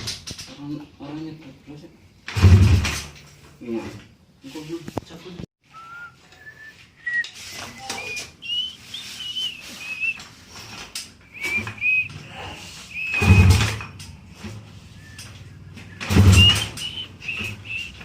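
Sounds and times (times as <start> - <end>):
short high whistled notes: 5.7 - 10.3, 11.3 - 13.7.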